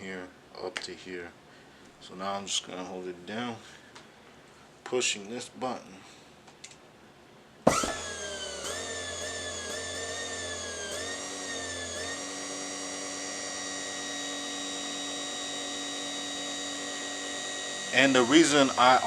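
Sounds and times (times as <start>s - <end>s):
electric motor whine: 7.7s - 19.0s.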